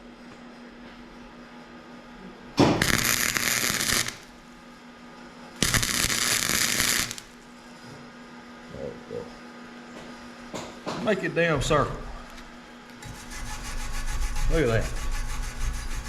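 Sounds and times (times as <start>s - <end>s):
welder arc crackling: 2.8s - 4.3s, 5.6s - 7.4s.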